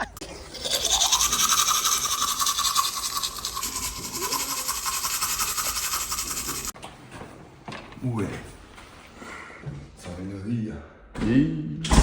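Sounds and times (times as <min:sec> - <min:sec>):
rhythmic scrubbing strokes: 0:00.0 - 0:06.8.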